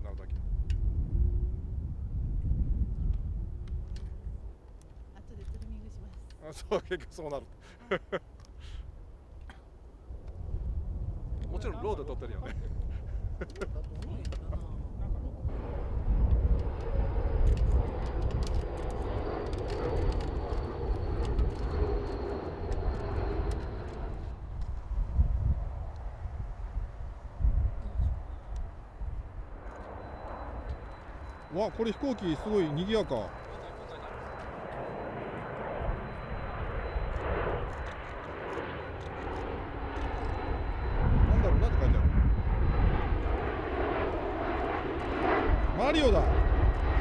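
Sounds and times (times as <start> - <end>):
jet airliner engine rumble: 0.0 - 47.0
sharp clicks: 16.6 - 24.1.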